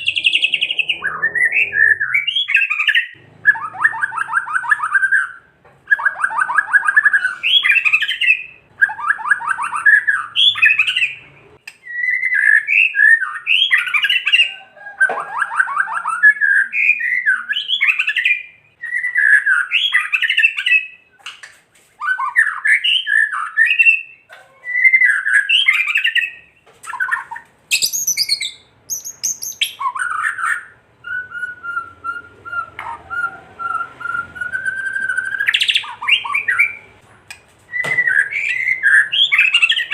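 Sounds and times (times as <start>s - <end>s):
bird long steady whistle: 31.0s - 35.8s.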